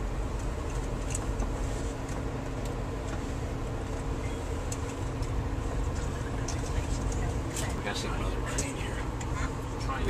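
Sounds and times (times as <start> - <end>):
train running rumble: 0.0 - 10.0.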